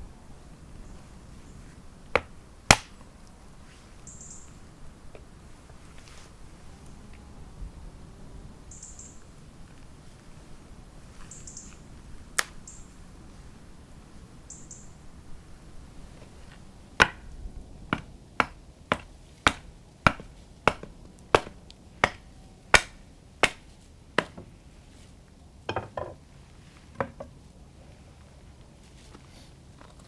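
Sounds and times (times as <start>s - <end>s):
knocks: 18.0s - 22.2s.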